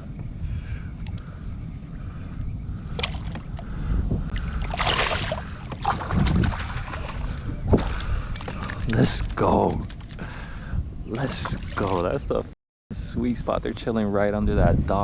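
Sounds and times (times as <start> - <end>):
wind buffeting microphone: 0.0 - 15.0
water splashing: 4.4 - 9.3, 11.1 - 12.3.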